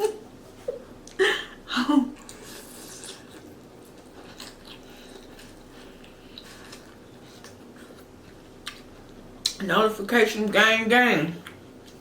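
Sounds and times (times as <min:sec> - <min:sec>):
low room hum: 0:00.0 - 0:12.0
person chewing: 0:02.2 - 0:09.6.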